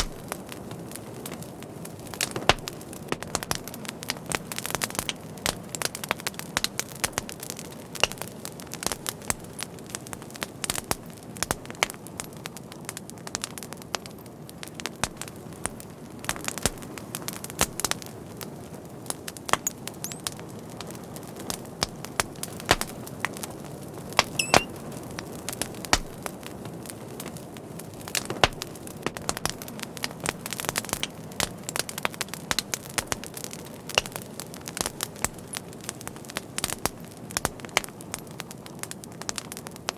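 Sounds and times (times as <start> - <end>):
wood fire crackling: 0.0 - 39.9
thin whistle: 24.4 - 24.7.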